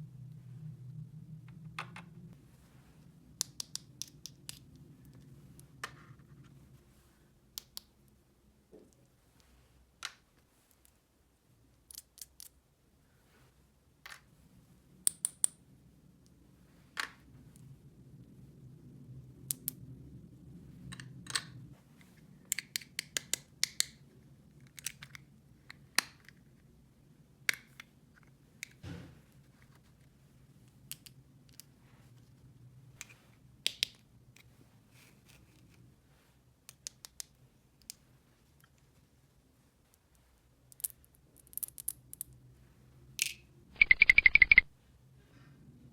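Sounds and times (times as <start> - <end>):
faint low hum: 0.0 - 9.5
plastic pieces clicking and tapping: 40.7 - 42.3.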